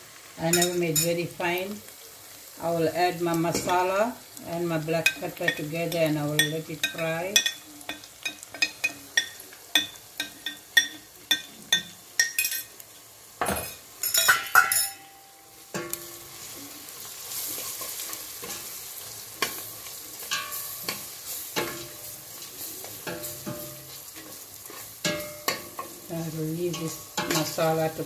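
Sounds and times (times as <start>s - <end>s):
food sizzling in oil: 0.0s - 28.0s
spoon tapping on a plate: 7.4s - 12.7s, 13.4s - 15.1s
spoon scraping a pot: 20.2s - 26.0s.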